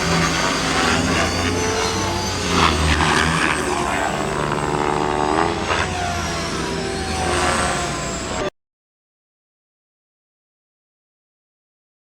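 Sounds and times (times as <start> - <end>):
model helicopter rotors whining: 0.0 - 8.5.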